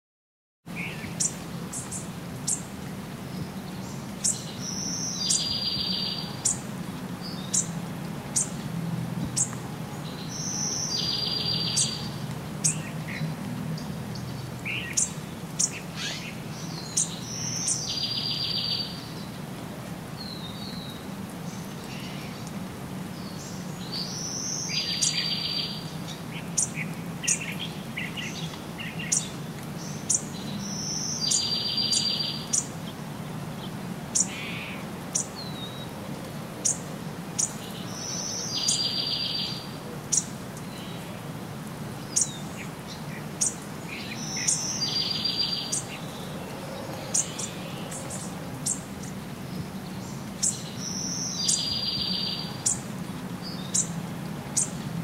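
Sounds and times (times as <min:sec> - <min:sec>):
songbirds singing and chirping: 0:00.7 - 0:55.0
bird song with trill: 0:00.8 - 0:02.7, 0:03.3 - 0:07.8, 0:09.4 - 0:19.4, 0:23.2 - 0:33.0, 0:37.4 - 0:41.1, 0:42.0 - 0:54.0.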